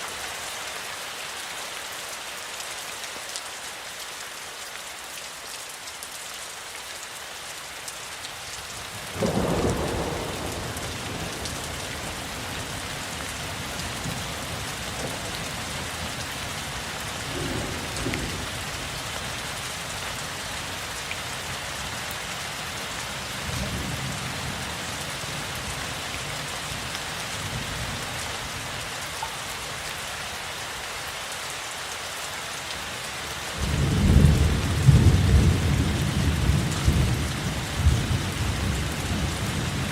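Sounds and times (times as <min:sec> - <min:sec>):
steady rain: 0:00.0 - 0:39.9
thunder: 0:09.2 - 0:12.2, 0:17.3 - 0:18.5.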